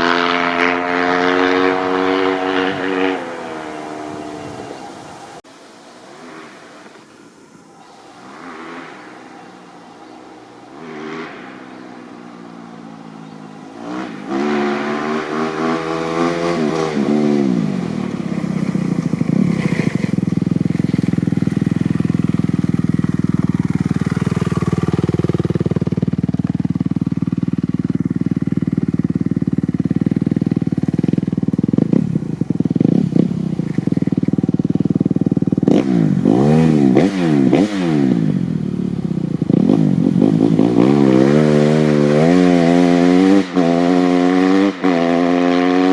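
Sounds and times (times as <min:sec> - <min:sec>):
dirt bike engine revving: 0:00.0 - 0:04.7, 0:07.8 - 0:45.9.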